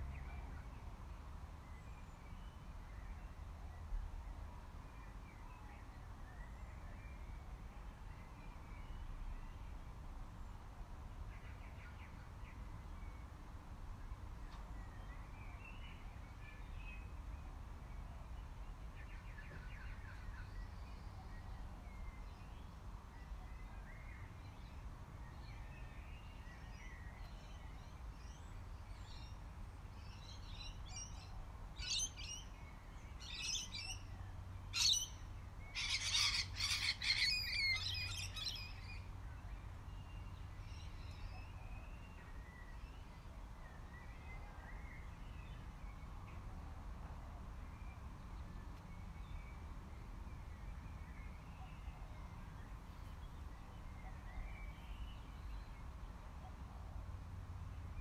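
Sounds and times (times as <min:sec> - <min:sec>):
wild birds chirping: 0:18.4 - 0:46.0.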